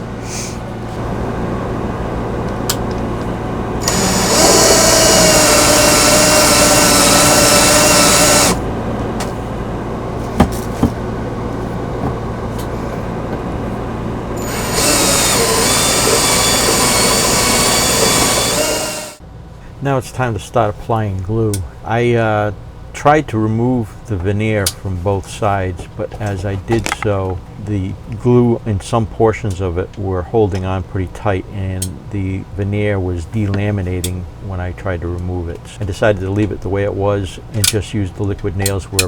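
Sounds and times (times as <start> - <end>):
steady low hum: 0.0 - 39.0
power drill running: 3.8 - 8.6, 14.4 - 19.2.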